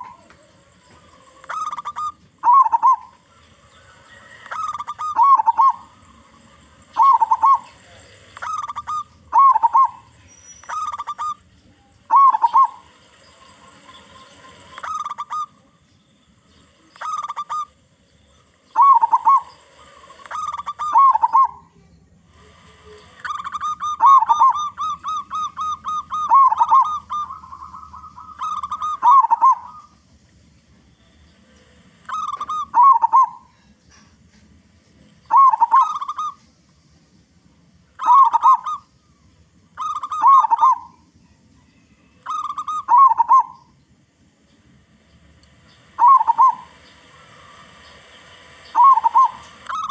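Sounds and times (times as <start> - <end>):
dove cooing: 0.0 - 15.7, 16.6 - 21.8, 22.4 - 30.0, 32.1 - 34.1, 35.3 - 36.5, 38.0 - 39.0, 39.8 - 41.1, 42.2 - 43.8, 45.9 - 49.9.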